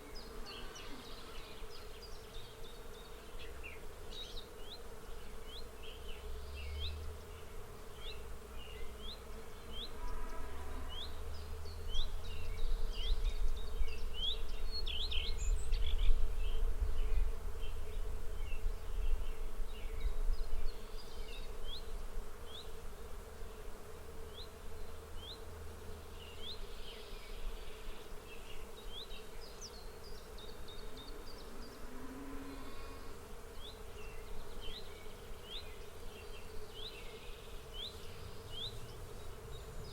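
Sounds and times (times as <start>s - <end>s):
insect buzz: 0.0s - 39.9s.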